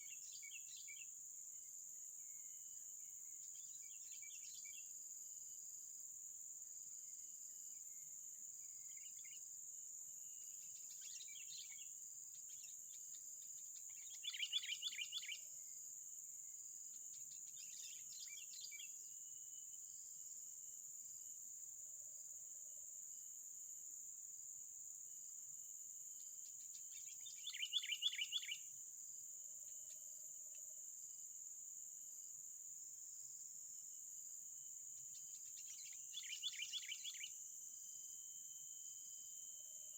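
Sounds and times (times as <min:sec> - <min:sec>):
high-pitched insect drone: 0:35.4 - 0:39.9.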